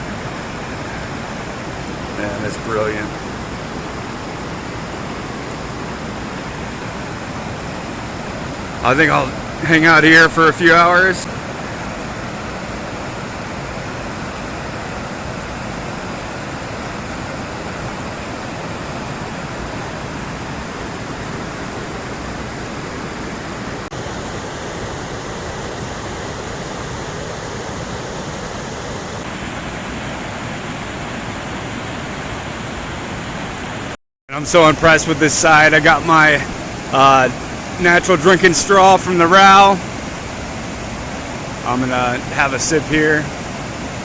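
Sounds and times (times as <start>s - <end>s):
whitewater rushing: 0.0s - 44.0s.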